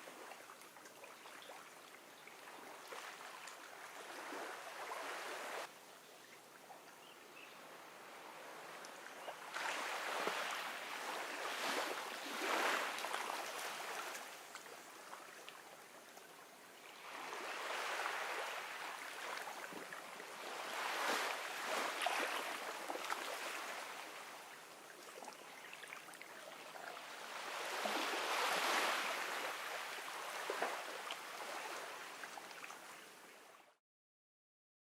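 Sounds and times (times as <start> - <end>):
ocean waves washing onto beach: 2.8 - 5.7, 7.8 - 14.6, 17.0 - 24.8, 26.8 - 32.7.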